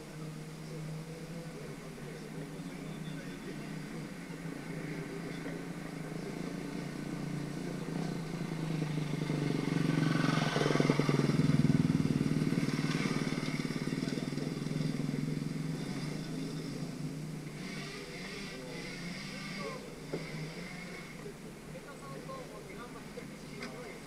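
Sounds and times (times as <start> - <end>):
dirt bike engine passing: 3.4 - 21.2.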